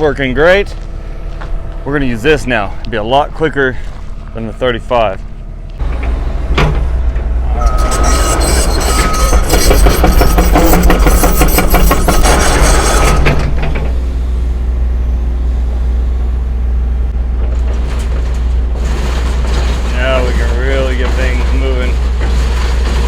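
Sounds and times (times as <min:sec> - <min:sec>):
excavator diesel engine running: 0:00.0 - 0:23.0
clanking and rattling: 0:05.8 - 0:14.2, 0:17.2 - 0:23.0
on-off high tone: 0:07.5 - 0:10.7.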